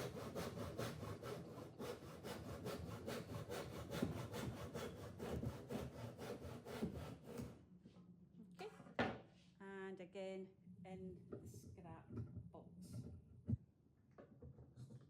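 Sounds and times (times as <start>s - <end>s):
hand saw cutting wood: 0.0s - 7.6s.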